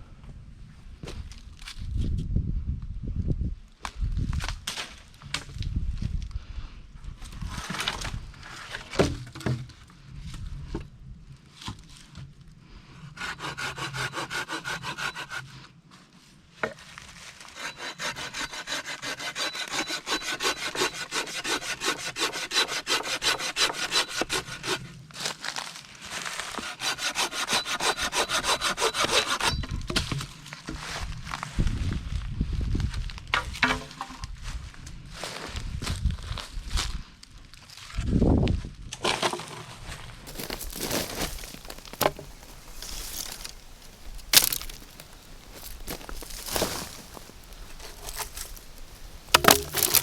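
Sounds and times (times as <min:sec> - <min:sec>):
hand saw cutting wood: 0:13.1 - 0:15.7, 0:17.4 - 0:24.9, 0:26.2 - 0:30.1, 0:40.3 - 0:50.0.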